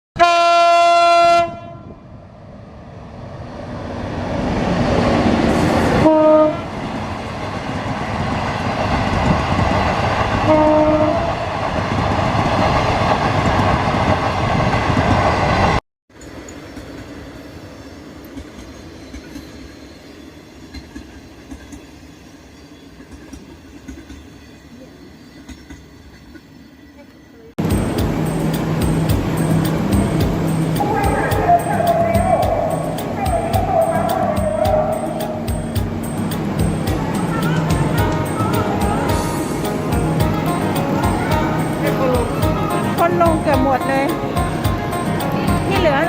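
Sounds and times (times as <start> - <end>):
train horn: 0.2 - 2.0, 5.9 - 6.8, 10.4 - 11.5, 37.1 - 46.0
train rushing past: 0.4 - 26.8, 27.6 - 46.0
steady rumble: 27.6 - 46.0.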